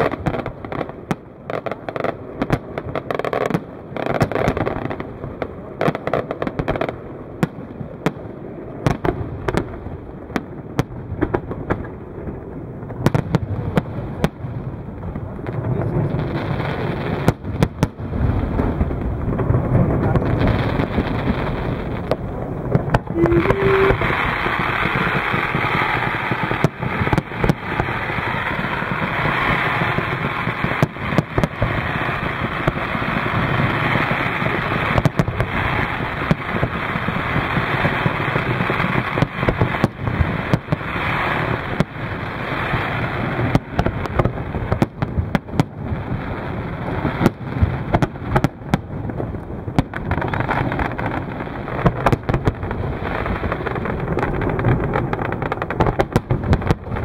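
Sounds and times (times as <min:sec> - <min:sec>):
fireworks crackling and banging: 0:00.0 - 0:57.0
sharp firework bangs: 0:15.5 - 0:46.0.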